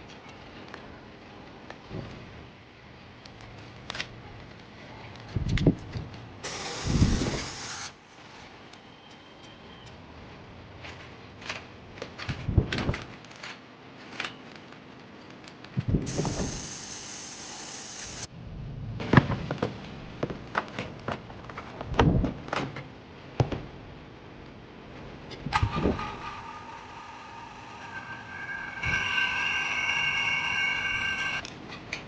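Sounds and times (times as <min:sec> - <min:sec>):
steady hiss: 0:06.4 - 0:08.3, 0:16.0 - 0:18.3.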